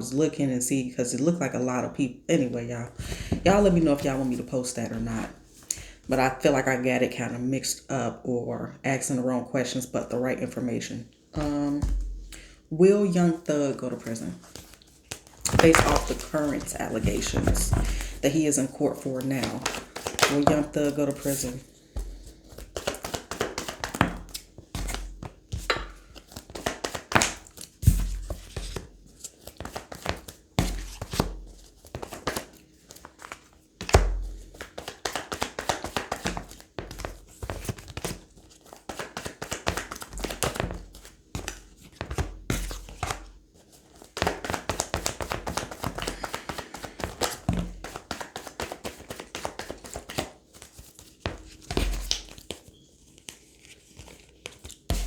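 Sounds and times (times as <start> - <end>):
cards being shuffled: 3.1 - 4.5, 14.0 - 55.0.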